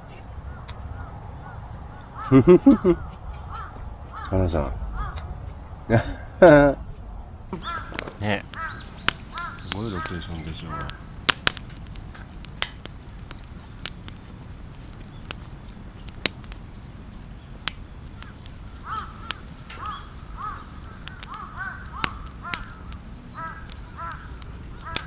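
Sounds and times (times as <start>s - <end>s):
campfire popping and crackling: 7.5s - 25.0s
crows cawing: 7.6s - 25.0s.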